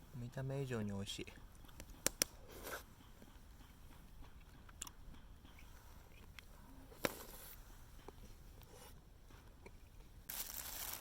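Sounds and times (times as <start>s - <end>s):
person chewing: 4.3s - 5.0s.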